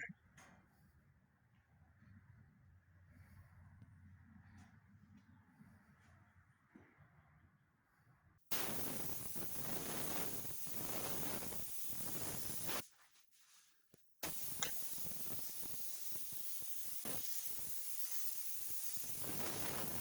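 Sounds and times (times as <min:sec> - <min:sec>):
spray gun air hiss: 0:08.5 - 0:12.8, 0:14.2 - 0:20.0.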